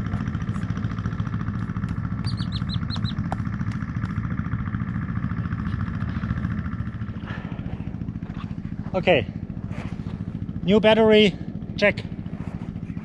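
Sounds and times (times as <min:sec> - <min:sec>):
motorcycle engine idling: 0:00.0 - 0:13.0
bird chirping: 0:02.2 - 0:03.2.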